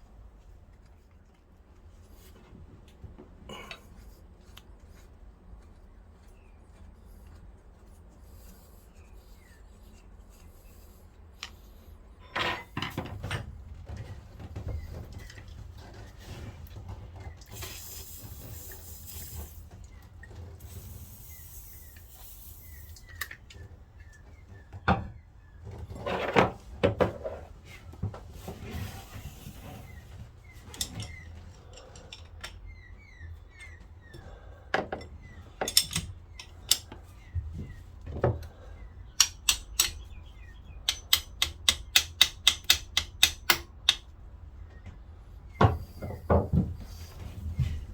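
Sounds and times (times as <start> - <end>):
hand tools clinking on metal: 34.9 - 37.0, 40.9 - 44.1.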